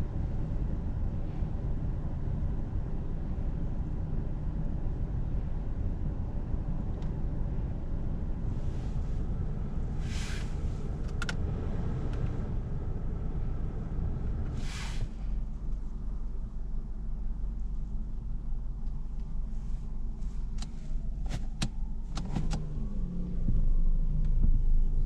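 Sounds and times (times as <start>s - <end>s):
car engine and road rumble: 0.0s - 25.0s
brief whooshes: 10.0s - 10.7s, 14.6s - 15.4s.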